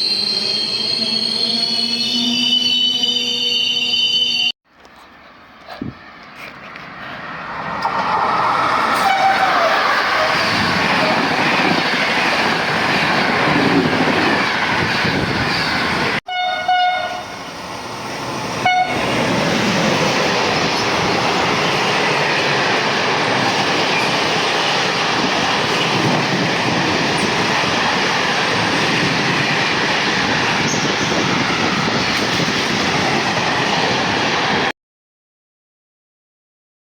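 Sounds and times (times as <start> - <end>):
train wheels rushing on rails: 5.9 - 16.2, 17.2 - 34.7
train horn: 9.0 - 10.3, 16.3 - 17.4, 18.6 - 19.0.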